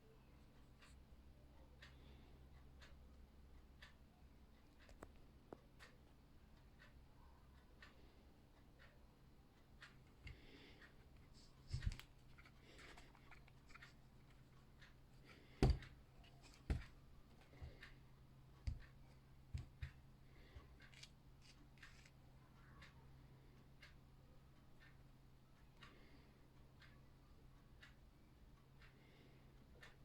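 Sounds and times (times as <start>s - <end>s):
faint steady hum: 0.0s - 30.0s
clicks and knocks of handling: 9.8s - 18.0s, 18.6s - 22.2s.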